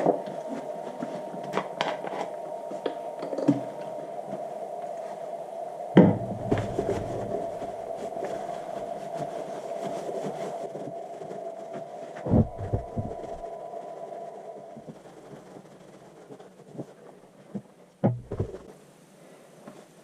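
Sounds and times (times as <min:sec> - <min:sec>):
steady mechanical hum: 0:05.9 - 0:08.9
heavy knocks: 0:06.0 - 0:07.6, 0:18.0 - 0:18.6.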